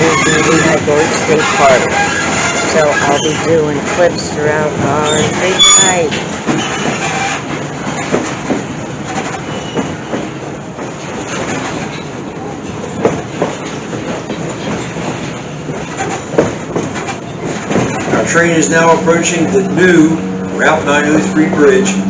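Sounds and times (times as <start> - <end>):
rumble of train wheels on rails: 0.0 - 22.0
clicks and knocks: 6.0 - 18.2.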